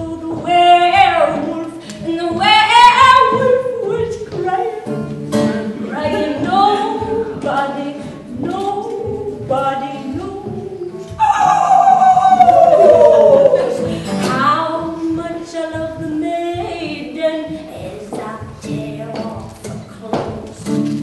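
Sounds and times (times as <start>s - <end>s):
person folk singing: 0.0s - 21.0s.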